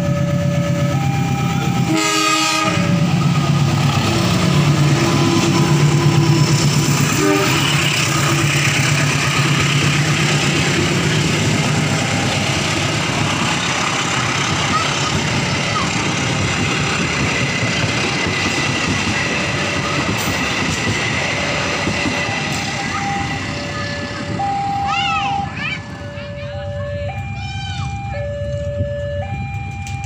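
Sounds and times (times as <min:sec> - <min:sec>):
train wheels clacking on rails: 0:00.0 - 0:26.0
diesel locomotive engine drone: 0:00.0 - 0:30.0
train horn blast: 0:01.7 - 0:03.2, 0:07.0 - 0:08.4.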